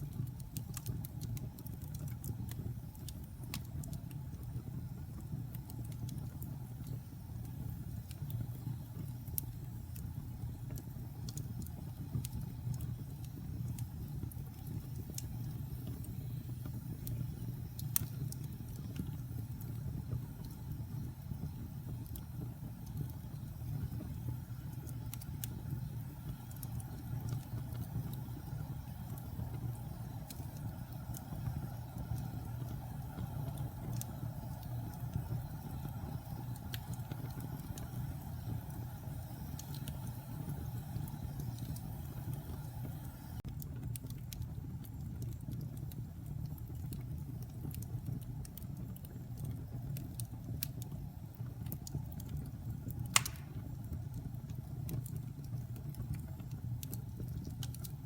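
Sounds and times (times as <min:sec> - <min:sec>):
fire crackling: 0:00.0 - 0:58.0
wood fire roaring: 0:00.0 - 0:58.0
sharp pop of fire: 0:53.1 - 0:53.8.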